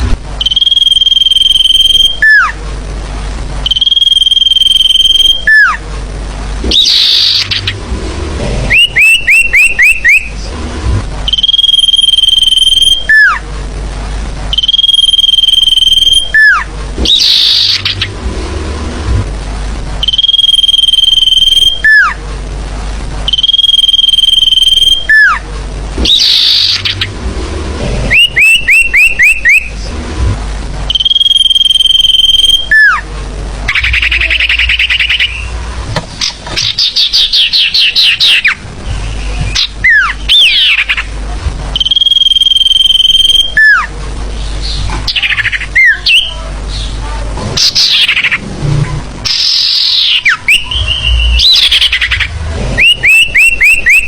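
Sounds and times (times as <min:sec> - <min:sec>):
whistle with downward slide: 0:00.4 - 0:02.5, 0:03.7 - 0:05.8, 0:11.3 - 0:13.4, 0:14.5 - 0:17.9, 0:20.0 - 0:22.2, 0:23.3 - 0:25.4, 0:28.1 - 0:29.7, 0:30.9 - 0:33.0, 0:41.8 - 0:43.9, 0:49.2 - 0:54.0
rapid chirping trills: 0:00.4 - 0:02.6, 0:03.6 - 0:05.8, 0:06.6 - 0:07.9, 0:08.6 - 0:10.5, 0:11.2 - 0:13.4, 0:14.5 - 0:18.2, 0:20.0 - 0:22.2, 0:23.3 - 0:25.4, 0:26.0 - 0:27.2, 0:28.0 - 0:29.8, 0:30.9 - 0:33.1, 0:33.7 - 0:41.2, 0:41.8 - 0:43.9, 0:47.6 - 0:48.4, 0:49.2 - 0:54.0
sliding bird calls: 0:06.6 - 0:13.4, 0:14.6 - 0:19.1, 0:26.0 - 0:30.2, 0:33.7 - 0:41.2, 0:47.6 - 0:54.0.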